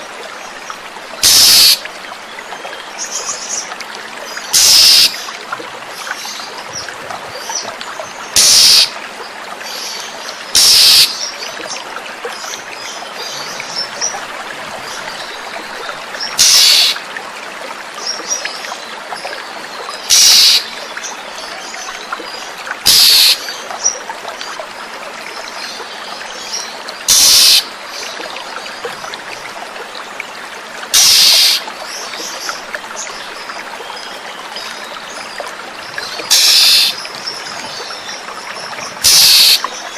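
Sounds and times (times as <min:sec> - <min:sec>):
trickling running water: 0:00.0 - 0:39.9
bird giving harsh calls: 0:01.2 - 0:01.8, 0:04.6 - 0:05.2, 0:08.4 - 0:08.9, 0:10.6 - 0:11.1, 0:16.4 - 0:17.0, 0:20.1 - 0:20.6, 0:22.9 - 0:23.4, 0:27.1 - 0:27.7, 0:31.0 - 0:31.6, 0:36.3 - 0:37.0, 0:39.0 - 0:39.6.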